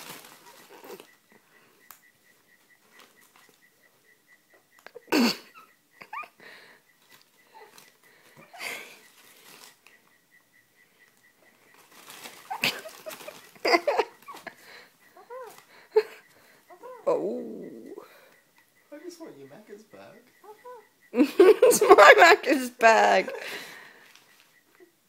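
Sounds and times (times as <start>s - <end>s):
cockatoo screeching: 14.0s - 18.2s, 20.3s - 21.0s.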